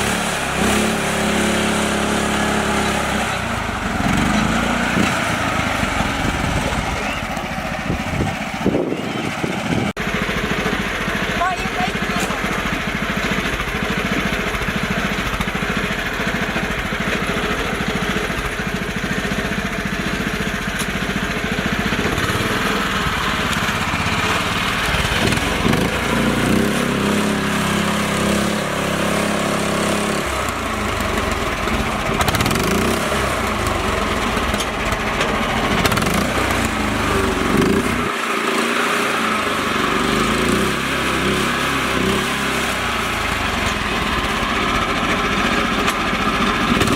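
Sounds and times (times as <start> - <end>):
small tractor engine running: 0.0 - 46.9.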